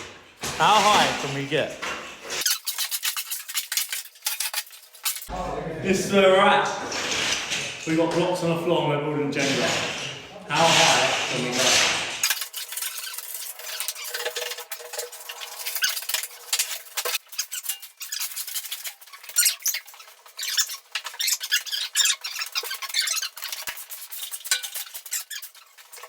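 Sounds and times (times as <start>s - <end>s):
blocks clacking and scraping: 9.4s - 26.0s.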